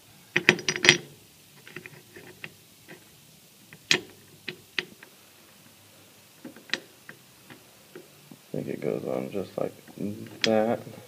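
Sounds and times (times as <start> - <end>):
metal part clicking and knocking: 0.4 - 3.1, 3.7 - 5.1, 6.4 - 8.1.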